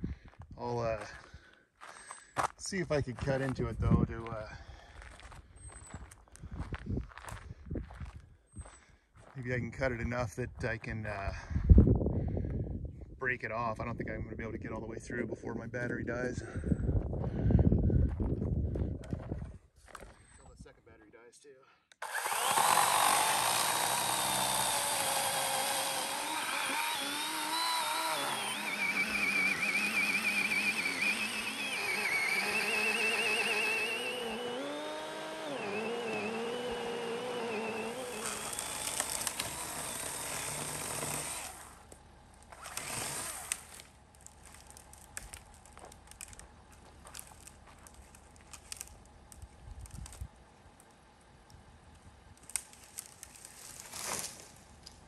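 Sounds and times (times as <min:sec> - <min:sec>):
chainsaw cutting wood: 0:22.0 - 0:45.4.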